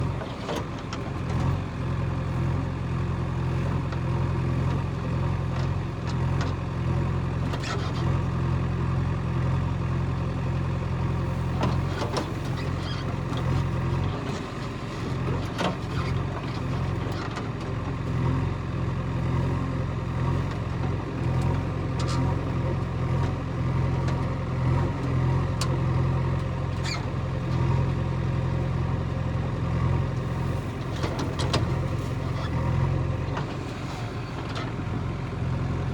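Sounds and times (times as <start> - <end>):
heavy machinery diesel engine: 0.0 - 35.9.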